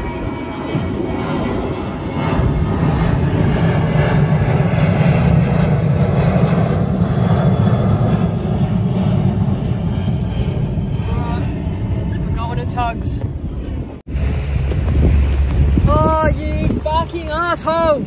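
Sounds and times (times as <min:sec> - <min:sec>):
outboard motor running: 0:14.1 - 0:18.0.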